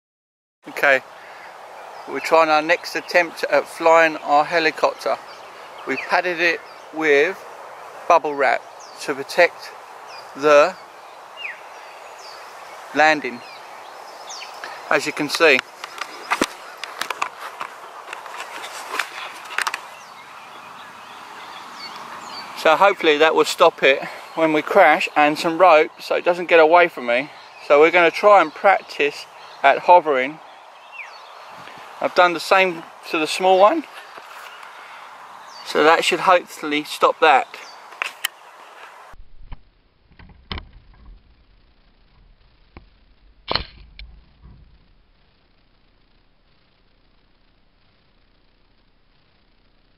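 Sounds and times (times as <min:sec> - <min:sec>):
steady background hiss: 0:00.6 - 0:39.2.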